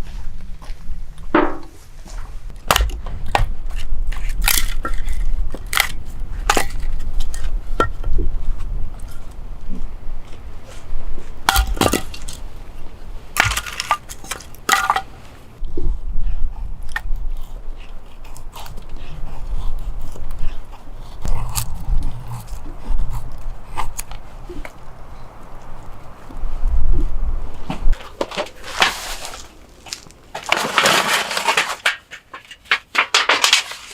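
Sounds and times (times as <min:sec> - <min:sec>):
steady low rumble: 0:00.0 - 0:30.4
camp gear clinking and knocking: 0:11.4 - 0:12.7, 0:13.3 - 0:15.6.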